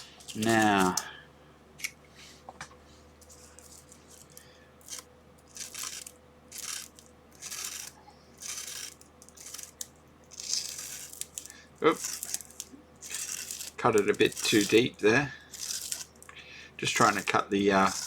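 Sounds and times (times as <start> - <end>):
bubble wrap rustling and crinkling: 3.3 - 14.9.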